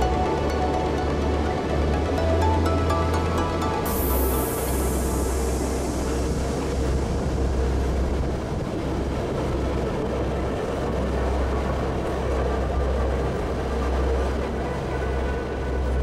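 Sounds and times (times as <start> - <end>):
electric train rumbling on track: 0.0 - 16.0.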